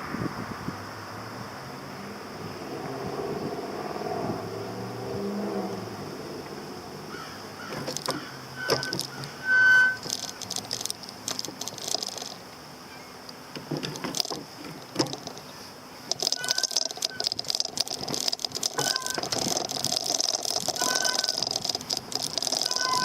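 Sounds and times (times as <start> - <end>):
e-bike rattling: 7.1 - 23.0.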